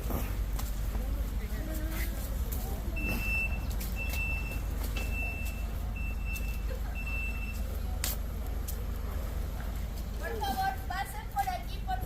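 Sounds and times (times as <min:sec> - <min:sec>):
reversing alarm beeping: 0:03.0 - 0:07.6.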